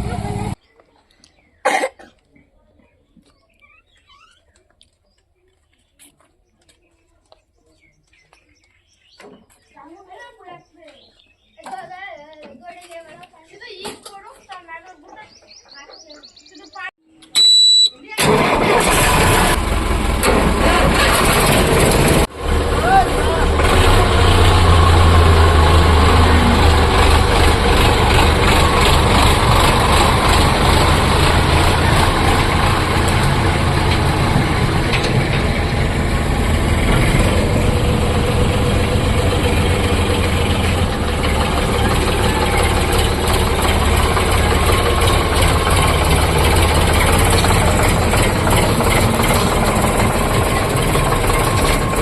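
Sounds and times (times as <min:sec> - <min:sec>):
diesel tractor engine droning: 0:00.0 - 0:00.6, 0:18.2 - 0:52.0.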